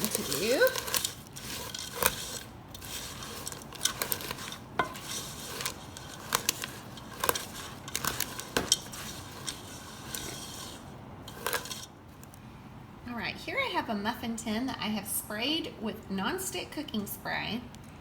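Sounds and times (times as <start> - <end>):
utensil clicking against pot: 0.0 - 11.9
steady rustle: 0.0 - 12.4.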